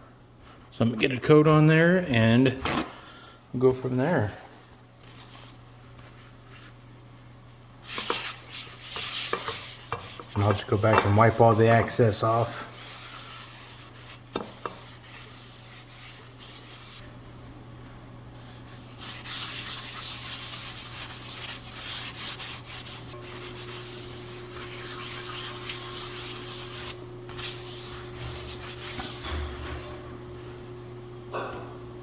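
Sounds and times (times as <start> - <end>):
hand rubbing cast iron skillet: 7.8 - 17.0, 18.6 - 30.0.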